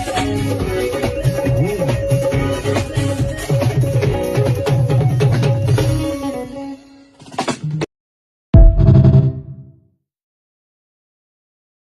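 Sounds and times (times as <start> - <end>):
dholak drum stroke ringing: 8.6 - 9.6.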